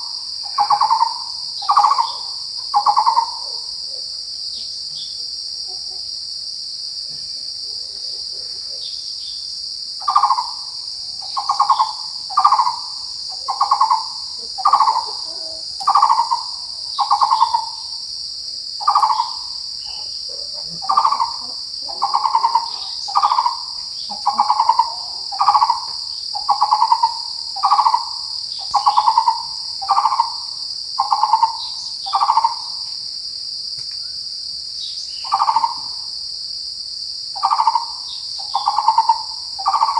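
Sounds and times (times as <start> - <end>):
high-pitched insect drone: 0.0 - 3.7, 10.0 - 18.2, 18.8 - 33.0, 34.8 - 36.2, 37.4 - 39.9.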